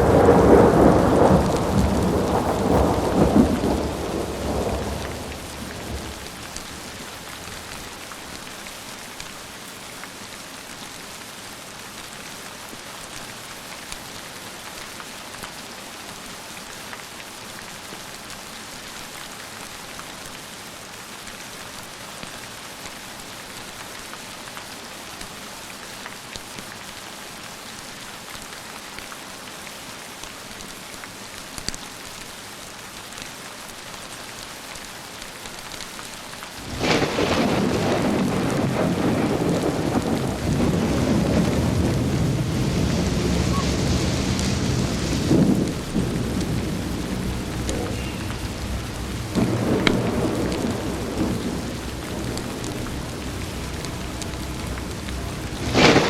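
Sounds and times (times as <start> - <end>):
thunder rumble: 0.0 - 8.3, 36.6 - 56.0
steady rain falling: 0.0 - 56.0.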